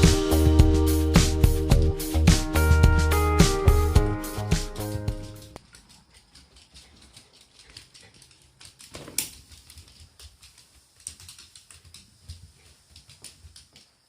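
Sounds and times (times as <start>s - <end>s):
background music: 0.0s - 5.6s.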